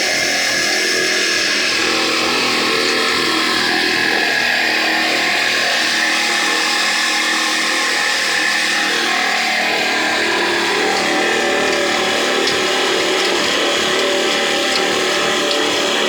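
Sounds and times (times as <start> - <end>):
flour mill grinding: 0.0 - 16.0
diesel engine running: 8.1 - 16.0.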